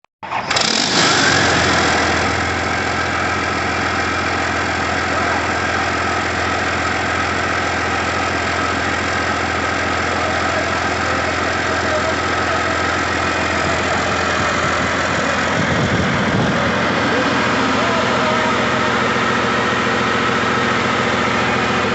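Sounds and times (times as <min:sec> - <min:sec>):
diesel engine idling: 0:00.2 - 0:21.9.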